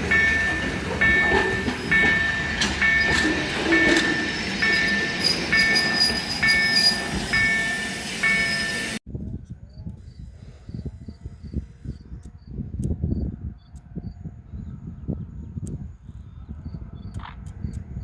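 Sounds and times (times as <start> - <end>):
freight train rumbling: 0.0 - 9.0
train wheel clacks: 0.0 - 9.0.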